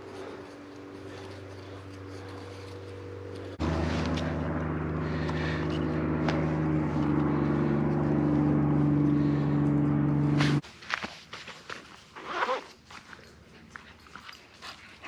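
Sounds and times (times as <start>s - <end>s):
low engine drone: 0.0s - 10.6s.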